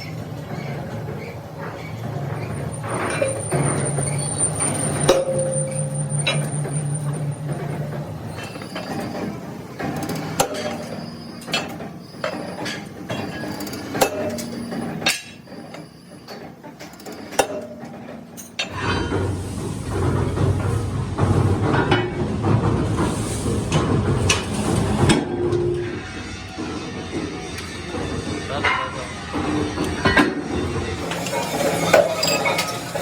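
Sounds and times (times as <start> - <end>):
metal clinking and knocking: 31.0 - 33.0.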